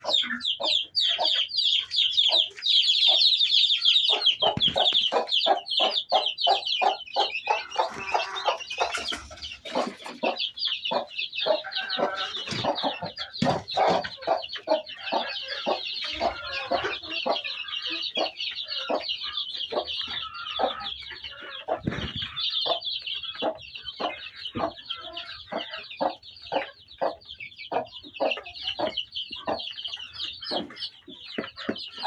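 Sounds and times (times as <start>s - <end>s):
chicks peeping: 0.0s - 32.0s
hen clucking: 0.0s - 32.0s.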